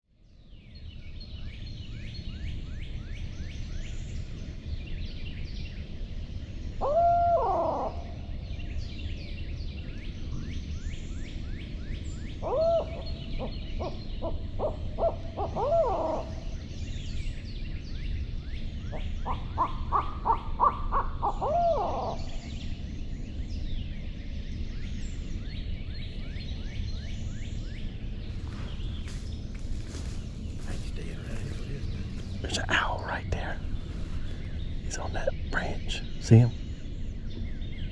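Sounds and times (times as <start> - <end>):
owl hooting: 6.8 - 8.2, 12.4 - 16.6, 18.9 - 22.6, 28.4 - 36.6
high chirping chorus: 27.9 - 37.1.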